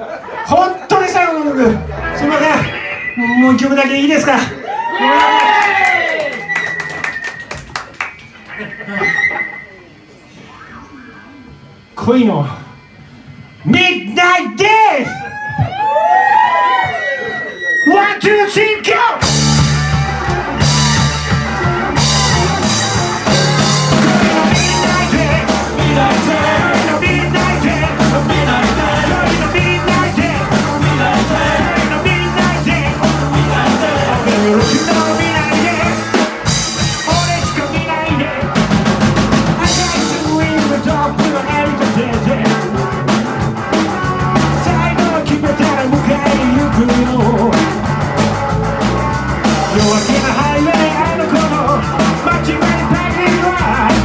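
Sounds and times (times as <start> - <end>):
bass guitar: 1.0 - 9.7, 19.2 - 54.0
drum kit: 19.2 - 54.0
person singing: 22.0 - 38.6, 39.5 - 42.8, 44.0 - 47.8, 49.6 - 54.0.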